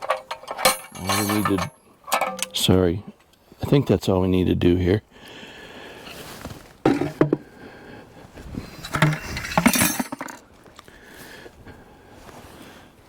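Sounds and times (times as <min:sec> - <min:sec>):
metal hand tools clinking: 0:00.0 - 0:02.7, 0:08.9 - 0:10.4.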